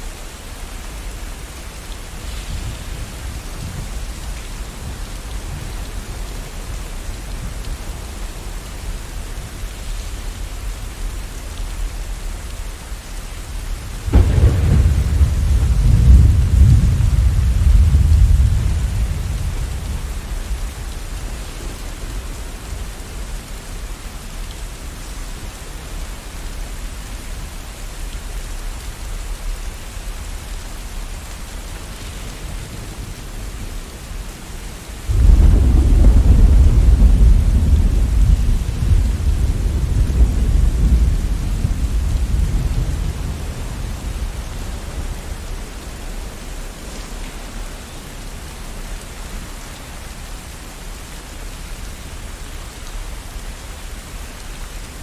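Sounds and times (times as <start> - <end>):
heavy rain: 0.0 - 55.0
deep thunder rumble: 14.0 - 22.9, 35.1 - 45.6.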